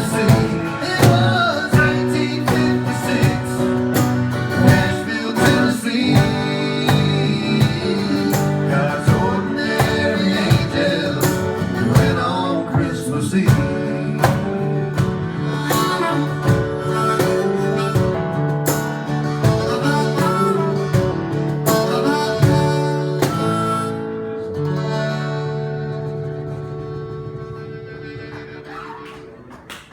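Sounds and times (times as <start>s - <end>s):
steady drum beat: 0.0s - 23.4s
band playing instrumental: 0.0s - 24.0s
harmonica: 0.0s - 29.4s.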